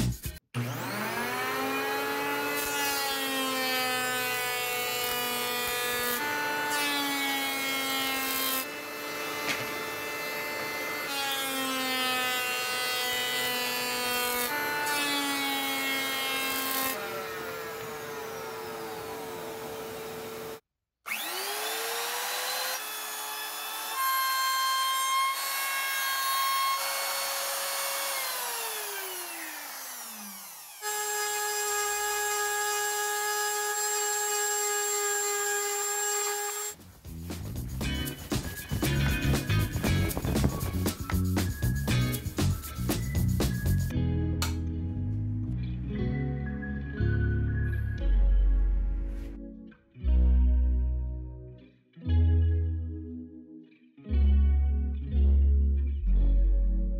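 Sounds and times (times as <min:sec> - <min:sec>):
electric hand planer whining: 0:00.6 - 0:36.8
power tool motor winding down: 0:00.6 - 0:36.8.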